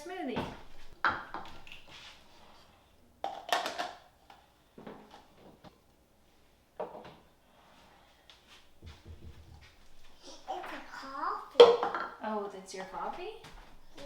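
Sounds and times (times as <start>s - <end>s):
cups and utensils clattering: 3.2s - 4.1s, 11.6s - 12.2s.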